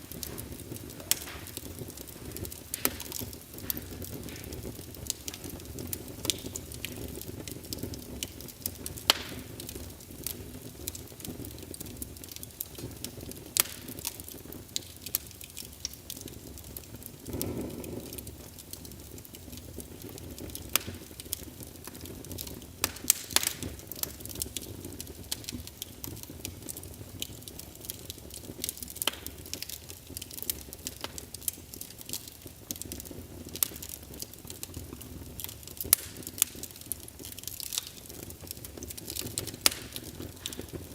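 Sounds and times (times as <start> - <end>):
low rush of flame: 0.0 - 14.5, 16.2 - 28.8
logs crackling and popping: 0.0 - 40.9.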